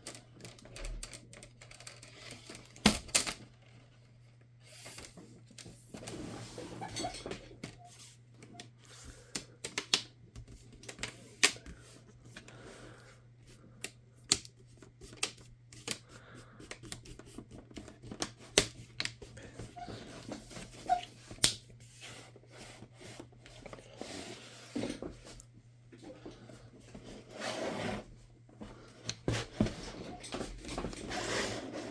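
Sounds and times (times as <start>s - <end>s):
plastic clicks and handling: 8.4s - 12.5s.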